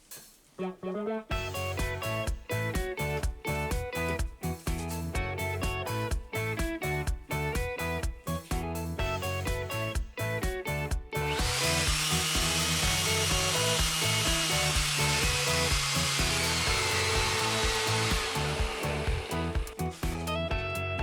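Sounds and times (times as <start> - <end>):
background music with steady beat: 1.3 - 21.0
high whine: 11.3 - 20.3
orbital sander running: 11.3 - 20.3.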